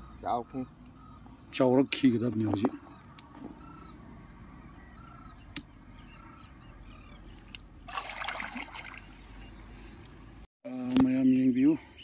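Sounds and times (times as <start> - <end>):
bird calling in arched notes: 0.0 - 7.5
wading through shallow water: 7.8 - 10.0.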